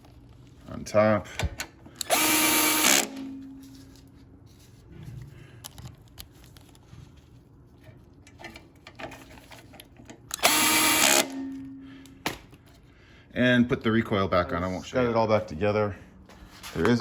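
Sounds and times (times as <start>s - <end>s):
tool handling sounds: 1.3s - 12.9s
cordless drill spinning: 2.0s - 3.2s, 10.3s - 11.4s.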